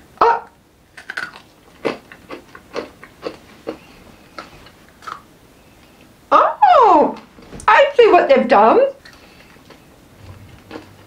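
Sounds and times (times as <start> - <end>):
candy crunching while chewing: 0.9 - 3.8, 4.9 - 5.3, 9.0 - 11.0.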